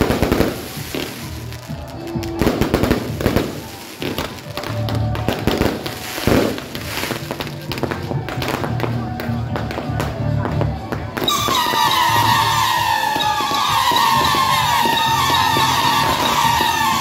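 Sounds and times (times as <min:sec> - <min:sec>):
fireworks crackling and popping: 0:00.0 - 0:17.0
music: 0:00.0 - 0:17.0.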